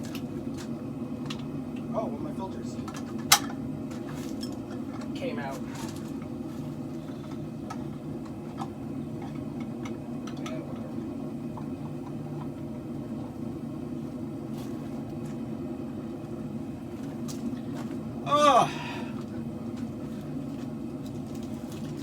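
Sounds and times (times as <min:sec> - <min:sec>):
light clicks and taps: 0:07.3 - 0:10.9.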